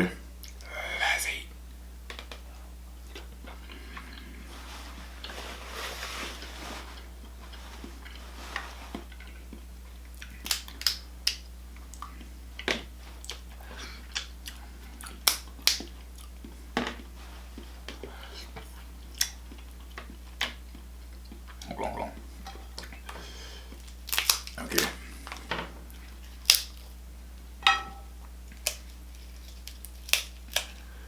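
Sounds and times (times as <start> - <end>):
low electrical hum: 0.0 - 31.0
soft rustle: 4.4 - 9.2
crab shells cracking: 10.2 - 11.5, 15.1 - 16.0, 23.8 - 25.6, 26.2 - 26.9, 28.5 - 30.9
biting and chewing: 17.8 - 27.0, 28.5 - 31.0.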